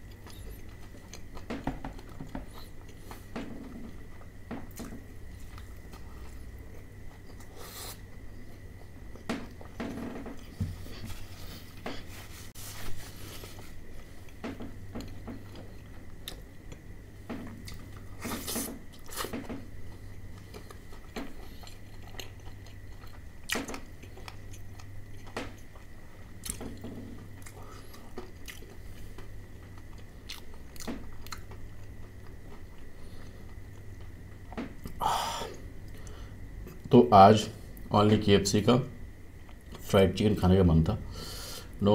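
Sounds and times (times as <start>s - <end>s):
faint steady hum: 0.0s - 41.9s
chewing fried chicken: 17.6s - 34.1s.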